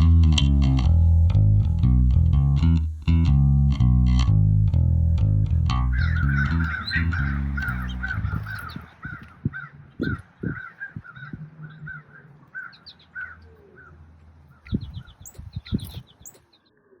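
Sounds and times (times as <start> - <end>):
low thumps: 0.0 - 13.2, 13.9 - 16.4
faint bass music: 0.0 - 16.4
birds calling: 5.7 - 17.0.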